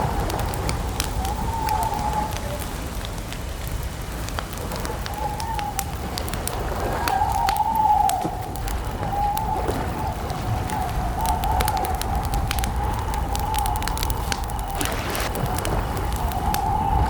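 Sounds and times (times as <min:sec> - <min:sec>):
campfire crackling: 0:00.0 - 0:17.0
low rumble: 0:13.9 - 0:17.0
bird calling: 0:14.4 - 0:15.4.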